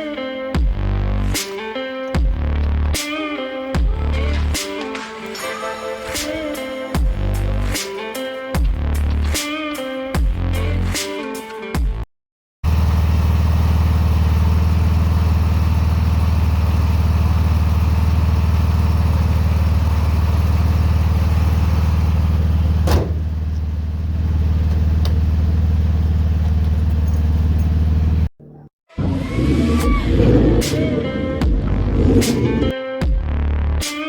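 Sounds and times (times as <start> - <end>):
car engine idling: 0.0 - 5.5, 6.2 - 11.0, 12.6 - 28.3.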